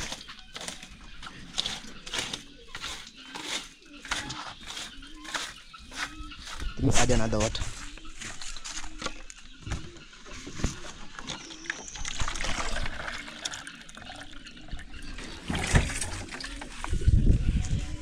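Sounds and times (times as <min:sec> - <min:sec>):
water pouring into container: 0:11.7 - 0:16.5.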